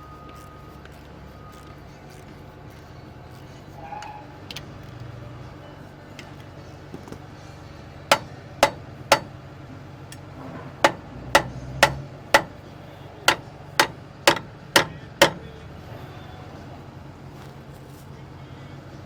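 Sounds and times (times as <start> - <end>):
hammer strikes: 8.1 - 9.4, 10.1 - 12.7, 13.3 - 15.6.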